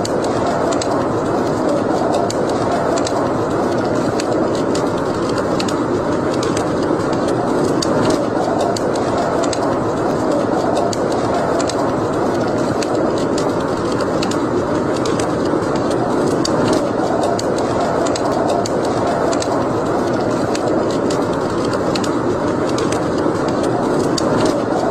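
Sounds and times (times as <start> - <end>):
fire crackles: 0.0 - 24.9
wood fire rushing: 0.0 - 24.9.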